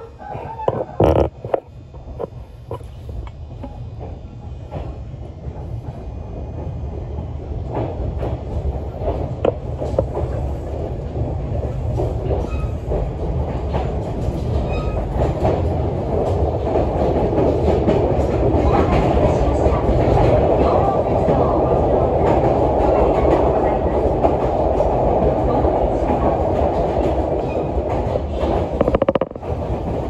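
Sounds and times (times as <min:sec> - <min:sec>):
train wheels clicking over rail joints: 0:22.2 - 0:30.0.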